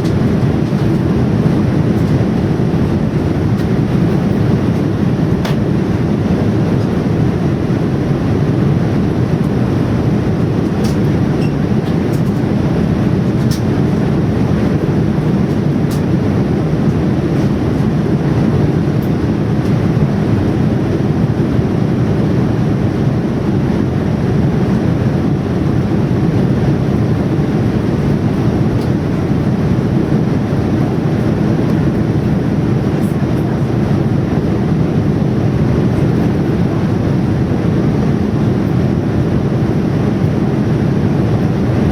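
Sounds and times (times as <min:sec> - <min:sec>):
jet engine cabin roar: 0:00.0 - 0:41.9.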